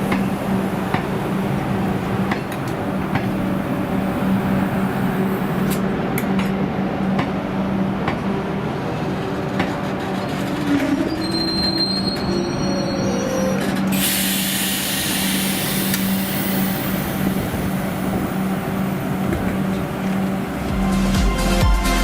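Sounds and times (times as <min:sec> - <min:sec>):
locomotive engine hum: 0:00.0 - 0:22.0
high-pitched brake squeals: 0:10.3 - 0:15.2
steady hiss: 0:14.0 - 0:19.0.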